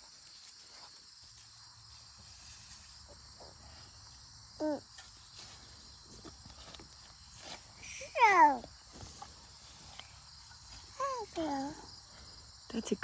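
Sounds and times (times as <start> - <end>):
faint scrapes and ticks: 0.0 - 4.2, 8.7 - 11.3
insects chirring: 0.0 - 13.0.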